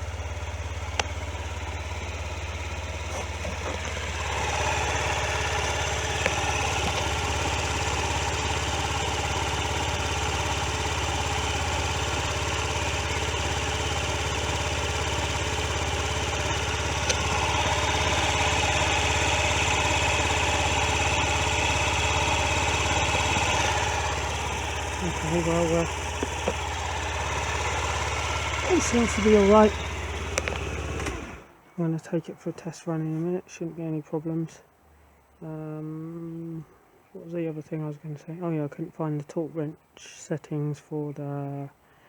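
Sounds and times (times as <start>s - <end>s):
scooter engine idling: 0.0s - 31.7s.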